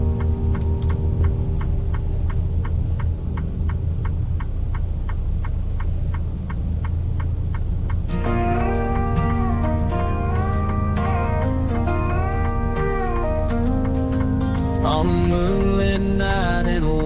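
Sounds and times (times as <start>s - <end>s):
regular ticking: 0.0s - 17.0s
car driving on wet road: 0.1s - 8.1s
slide guitar country song: 8.1s - 17.0s.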